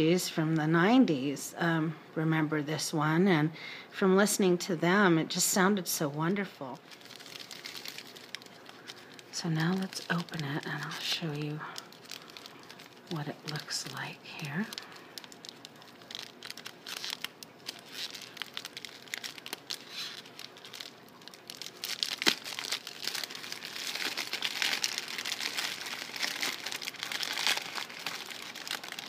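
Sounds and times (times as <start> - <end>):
wrapping crinkling and tearing: 6.6 - 29.0.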